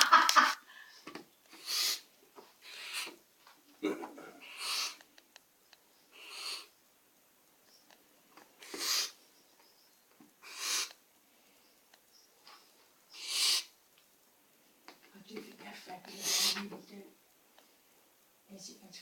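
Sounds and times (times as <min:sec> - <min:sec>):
baby owl hissing: 0:01.5 - 0:03.2, 0:04.4 - 0:05.1, 0:06.0 - 0:06.8, 0:08.6 - 0:09.3, 0:10.4 - 0:11.0, 0:13.0 - 0:13.8, 0:16.0 - 0:16.9.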